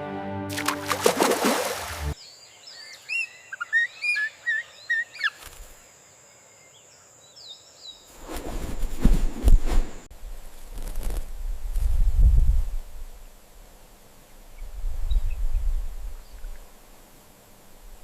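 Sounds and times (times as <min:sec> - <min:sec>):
bird chirping: 0:02.2 - 0:08.1
loud rustling with low thuds: 0:08.2 - 0:13.0.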